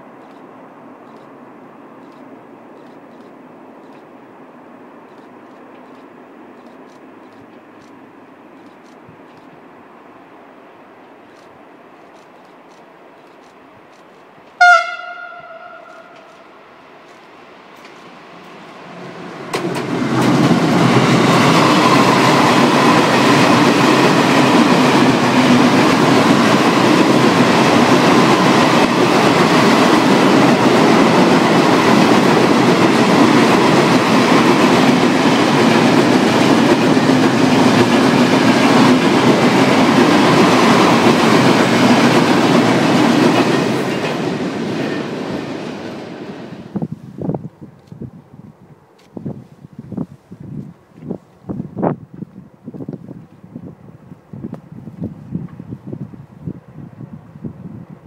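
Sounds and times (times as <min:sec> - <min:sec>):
train wheels clattering on rails: 0:19.4 - 0:46.3.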